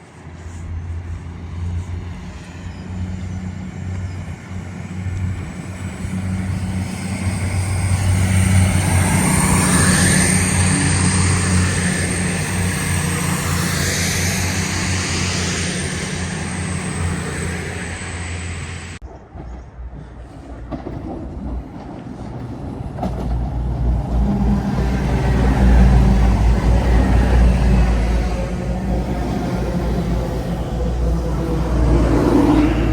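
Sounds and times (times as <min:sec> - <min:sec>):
low train rumble: 0:00.0 - 0:32.9
train engine hum and whine: 0:00.0 - 0:32.9.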